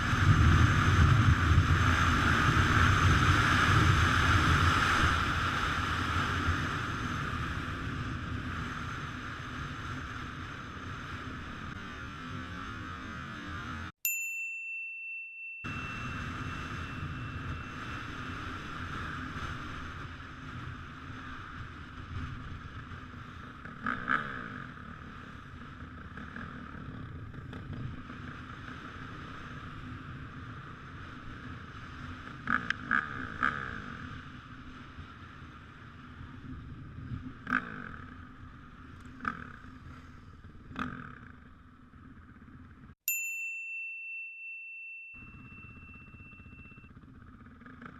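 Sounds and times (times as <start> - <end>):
motorcycle engine running: 0.0 - 47.9
electronic ding: 14.1 - 18.4, 43.1 - 46.9.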